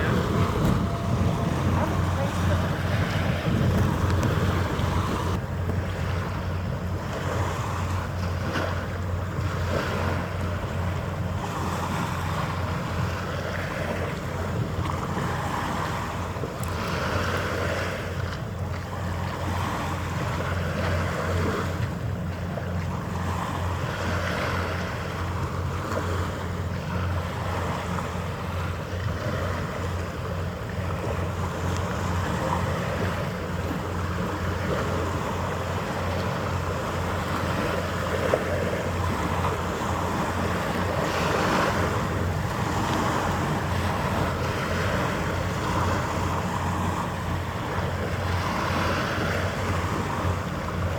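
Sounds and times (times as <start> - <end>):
steady low drone: 0.0 - 16.9
wind on microphone: 0.0 - 50.9.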